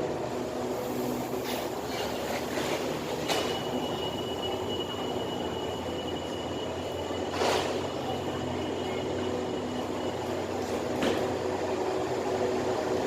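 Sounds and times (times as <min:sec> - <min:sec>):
diesel train engine drone: 0:00.0 - 0:13.0
high squeal: 0:01.5 - 0:10.4.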